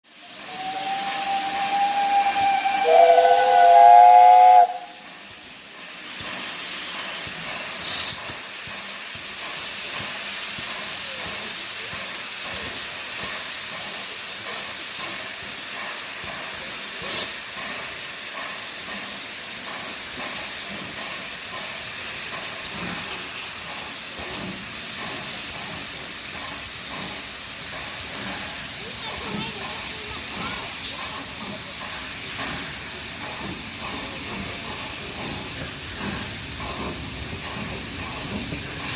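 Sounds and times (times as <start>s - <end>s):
steam hissing: 0.0s - 38.9s
steam locomotive whistle: 0.2s - 5.1s.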